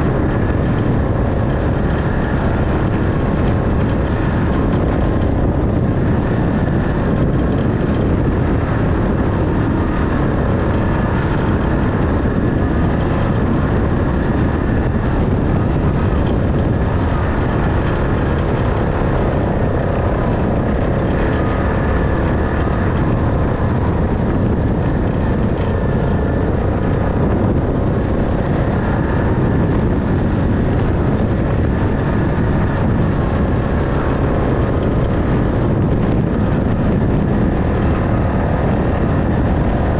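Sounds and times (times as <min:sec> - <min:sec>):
vehicle engine droning: 0:00.0 - 0:39.9.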